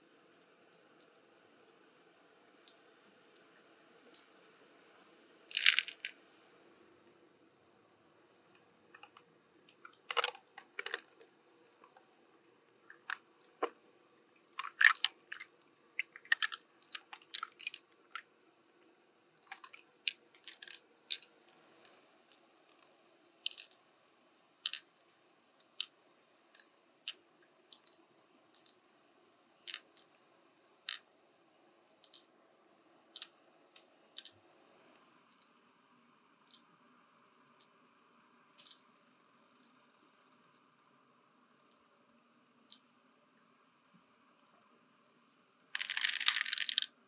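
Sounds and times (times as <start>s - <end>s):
hard shell clicking and crunching: 5.5s - 6.1s, 9.0s - 11.1s, 14.6s - 18.2s, 19.4s - 21.3s, 23.4s - 23.8s, 26.6s - 28.8s, 29.7s - 30.1s, 32.0s - 32.3s, 45.8s - 46.9s.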